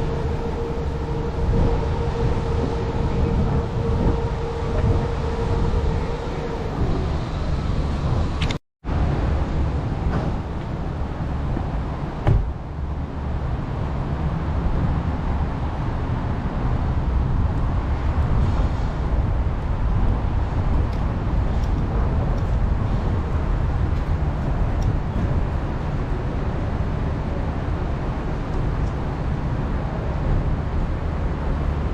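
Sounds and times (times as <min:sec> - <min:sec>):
car road and engine rumble: 0:00.0 - 0:31.9
thump: 0:12.2 - 0:12.5.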